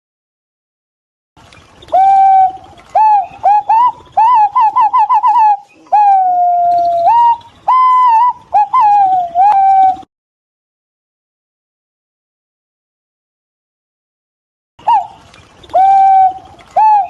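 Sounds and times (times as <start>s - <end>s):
pigeon whistled song: 1.8s - 10.1s, 14.8s - 17.0s.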